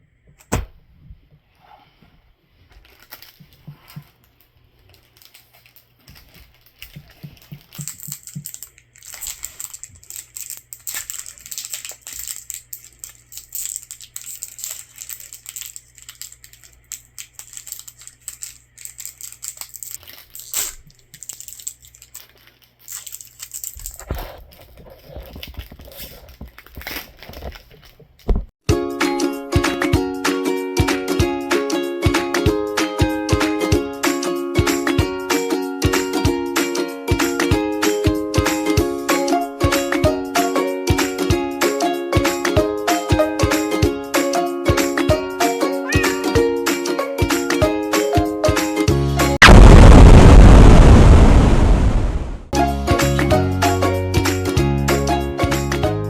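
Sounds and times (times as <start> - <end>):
foil wrappers tearing and crinkling: 2.7 - 28.4.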